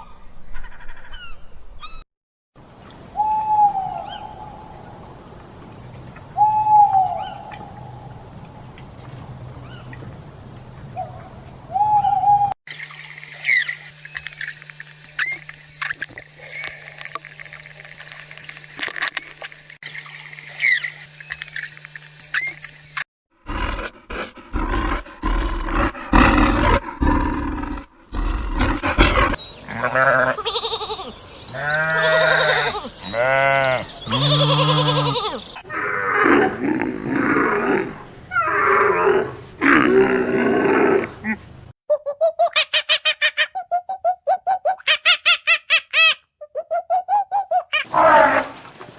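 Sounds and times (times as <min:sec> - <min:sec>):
large animal roaring and growling: 0:23.4 - 0:29.4, 0:35.7 - 0:41.4, 0:47.9 - 0:48.6.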